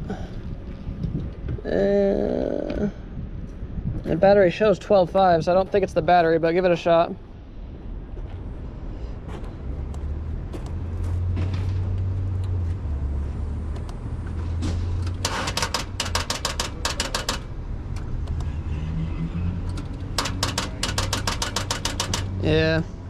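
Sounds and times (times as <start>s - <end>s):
starter solenoid rapid clicking: 15.0s - 18.1s, 19.7s - 22.4s.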